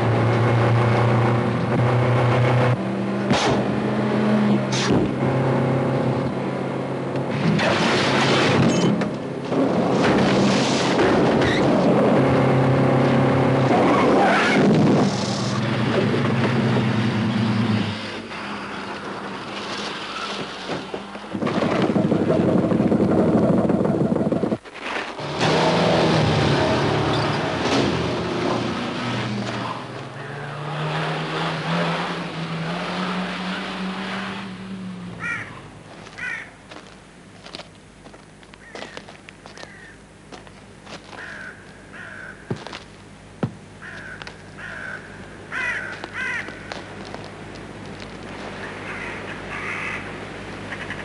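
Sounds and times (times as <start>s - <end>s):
car engines running hard: 0.0s - 51.0s
tyres squealing and skidding: 10.2s - 11.9s, 13.6s - 15.8s, 17.0s - 21.1s, 25.2s - 27.7s.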